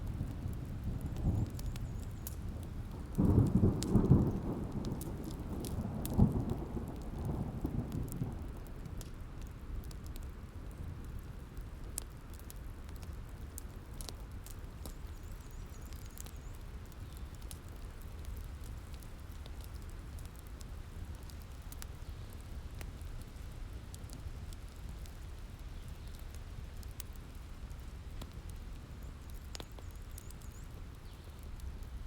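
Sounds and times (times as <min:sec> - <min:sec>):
rain thunderstorm rumble: 0:00.0 - 0:11.4
wood fire crackling: 0:00.0 - 0:32.0.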